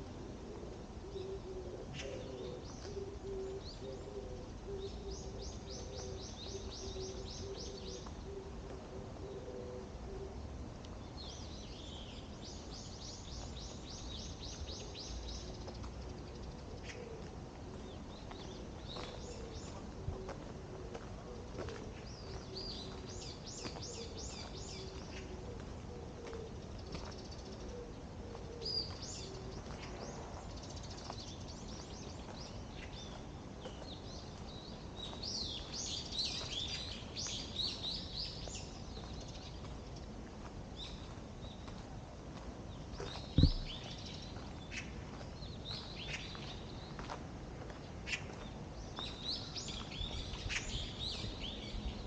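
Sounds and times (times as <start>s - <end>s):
songbirds chirping and twittering: 0.0s - 52.0s
loud dull thump: 43.4s - 43.9s.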